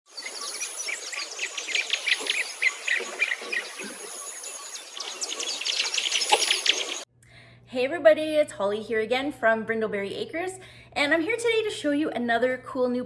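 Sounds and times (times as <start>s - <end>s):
birds chirping: 0.1s - 7.1s.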